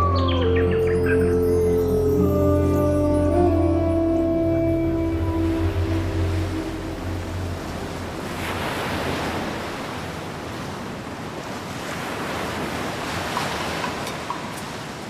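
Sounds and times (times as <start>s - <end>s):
ocean waves washing onto shore: 4.9s - 15.0s.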